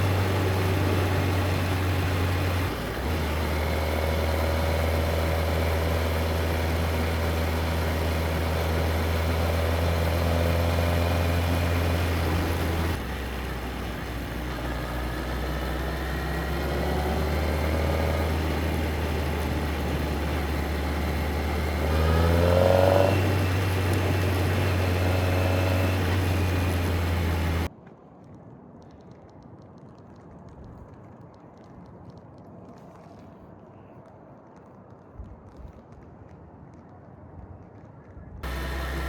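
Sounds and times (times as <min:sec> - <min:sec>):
motorcycle engine accelerating: 0:00.0 - 0:27.7, 0:38.4 - 0:39.0.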